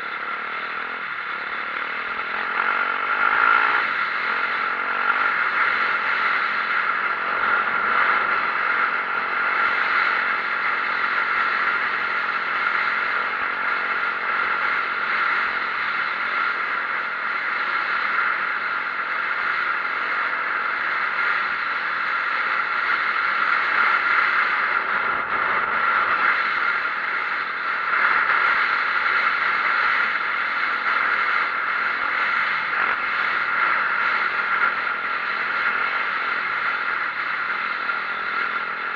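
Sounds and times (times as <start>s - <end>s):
dirt bike engine running: 0.0s - 38.9s.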